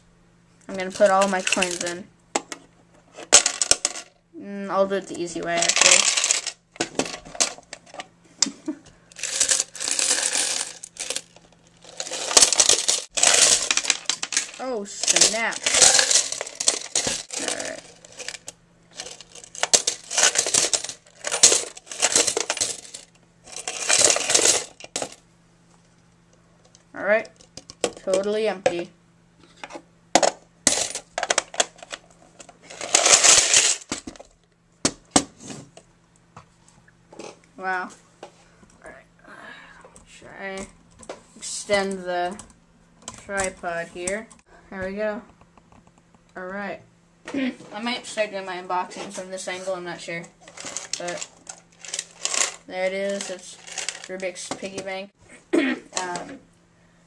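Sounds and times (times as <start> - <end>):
coins clinking: 0.9 - 2.0, 5.6 - 6.6, 9.2 - 25.2, 32.8 - 34.0, 50.6 - 54.2
rush of many coins: 9.2 - 11.3, 11.9 - 18.4, 19.0 - 24.7, 32.8 - 33.9.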